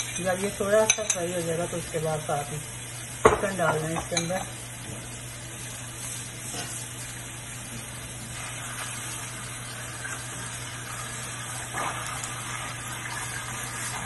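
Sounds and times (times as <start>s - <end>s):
onions sizzling in hot oil: 0.0s - 14.0s
spatula stirring in a pan: 5.6s - 7.2s.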